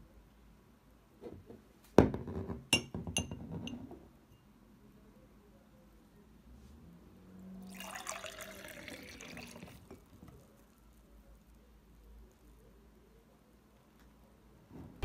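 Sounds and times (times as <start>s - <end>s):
juice pouring into a glass: 7.6s - 10.8s.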